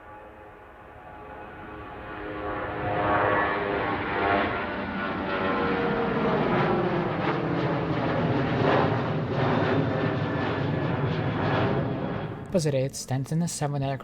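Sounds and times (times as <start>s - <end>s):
jet engines whining: 0.0s - 14.0s.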